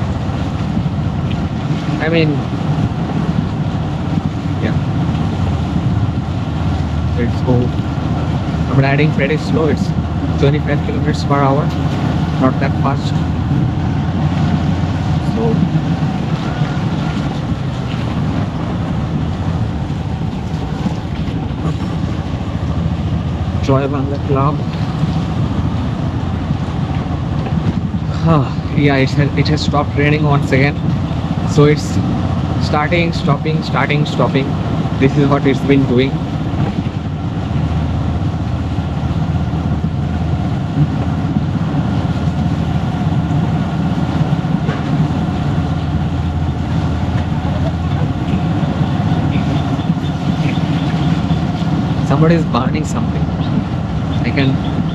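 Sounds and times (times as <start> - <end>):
wind rumbling on microphone: 0.0 - 54.9.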